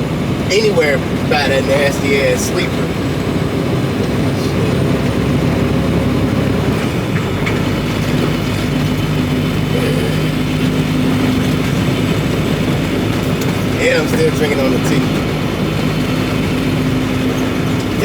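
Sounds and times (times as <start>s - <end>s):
diesel engine rumble: 0.0s - 18.0s
road noise: 0.0s - 18.0s.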